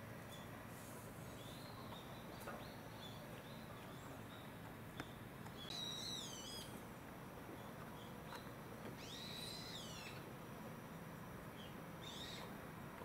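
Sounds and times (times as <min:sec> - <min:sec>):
bird chirping and whistling: 0:05.6 - 0:06.7, 0:09.0 - 0:10.2.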